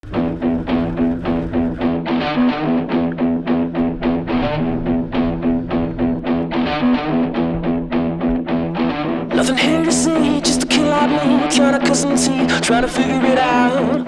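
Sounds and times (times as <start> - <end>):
rhythmic guitar: 0.0 - 14.0
person singing: 9.3 - 14.0.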